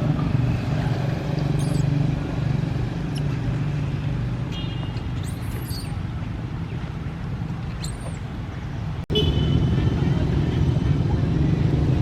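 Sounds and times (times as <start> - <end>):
short high squeaks: 1.5 - 2.0, 4.5 - 6.0, 7.7 - 8.3.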